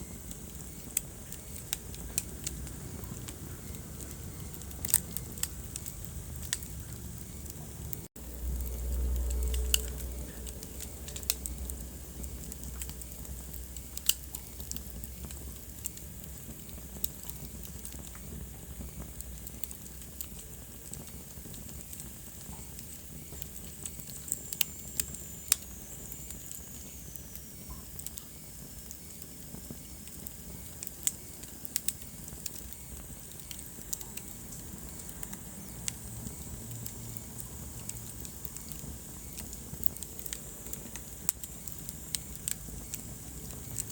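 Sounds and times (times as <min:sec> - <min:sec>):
fire hiss: 0:00.0 - 0:43.9
wood fire crackling and popping: 0:00.0 - 0:43.9
low rumble: 0:01.2 - 0:15.6.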